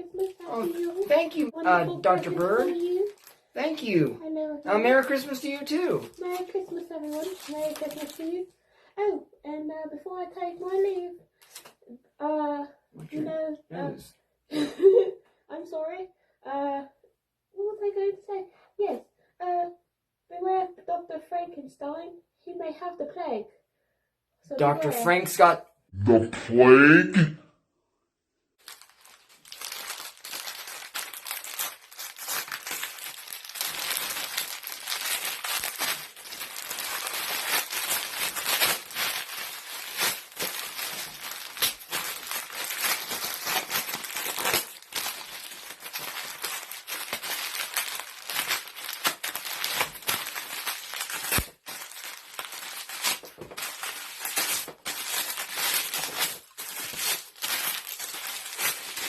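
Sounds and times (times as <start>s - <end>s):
wrapping paper crinkling and tearing: 0.0s - 3.5s, 4.8s - 8.4s, 28.6s - 59.0s.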